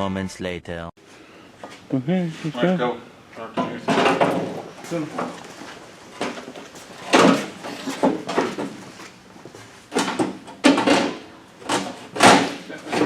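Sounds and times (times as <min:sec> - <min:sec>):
metal clunks and scrapes: 0:03.5 - 0:13.0.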